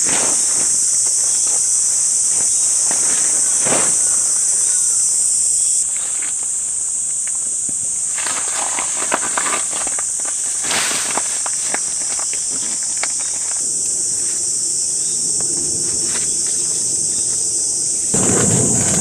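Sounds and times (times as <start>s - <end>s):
high-pitched insect chorus: 0.0s - 19.0s
rustles and small clicks: 8.2s - 13.6s.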